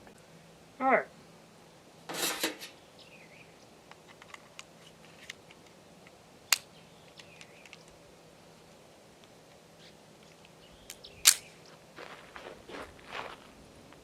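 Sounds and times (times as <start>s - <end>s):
loud sharp click: 10.9s - 11.5s.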